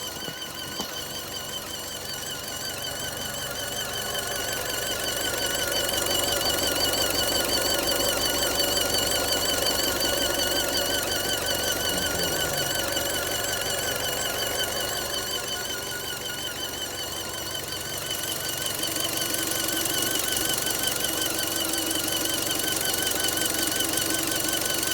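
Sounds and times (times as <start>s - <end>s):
car engine running: 0.0s - 24.9s
high-pitched engine squeal: 0.0s - 24.9s.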